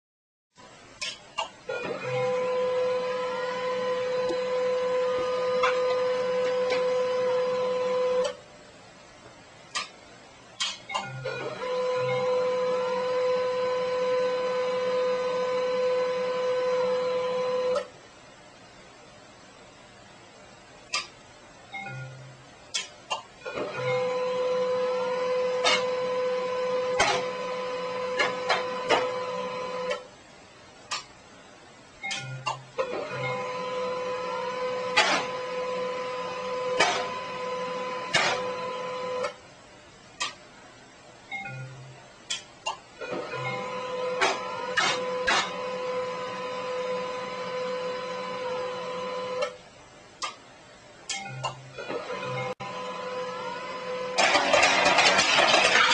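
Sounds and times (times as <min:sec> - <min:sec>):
printer motor whine: 0:01.7 - 0:08.4, 0:11.0 - 0:17.9, 0:23.5 - 0:30.1, 0:32.8 - 0:39.4, 0:43.0 - 0:49.6, 0:51.8 - 0:55.9
printer clunks: 0:26.9 - 0:27.4, 0:34.9 - 0:35.5, 0:36.7 - 0:37.2, 0:38.1 - 0:38.6.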